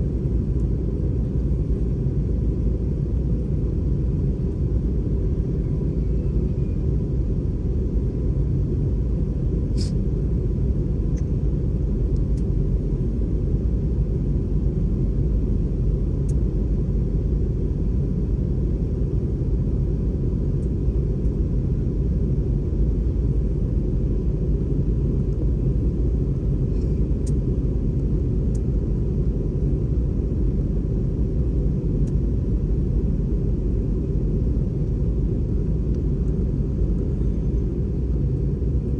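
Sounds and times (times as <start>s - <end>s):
aircraft cabin rumble: 0.0s - 38.9s
faint steady tone: 4.2s - 7.5s.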